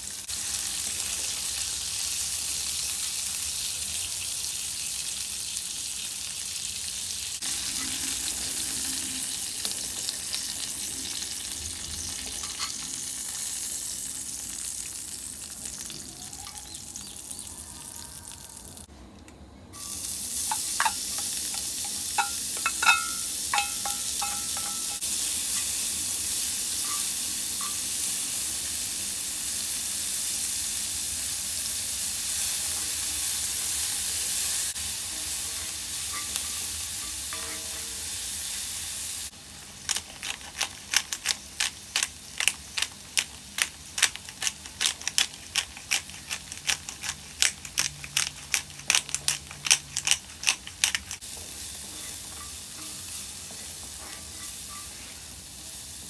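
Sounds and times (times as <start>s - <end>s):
food sizzling in a skillet: 0.0s - 17.9s, 19.8s - 44.7s, 51.2s - 56.0s
utensil knocking against pan: 20.5s - 25.0s.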